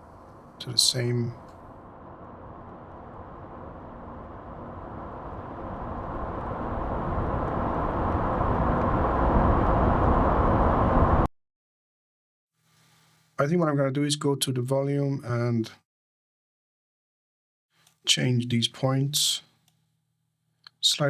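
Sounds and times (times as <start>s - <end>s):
car approaching: 1.9s - 11.3s.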